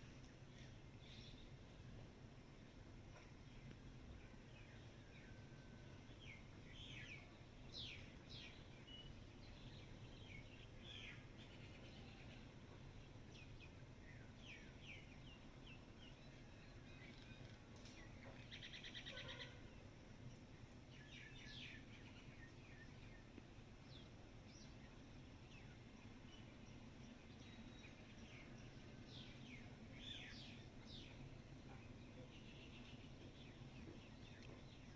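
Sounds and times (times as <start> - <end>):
low steady hum: 0.0 - 34.9
small birds chirping: 6.1 - 34.9.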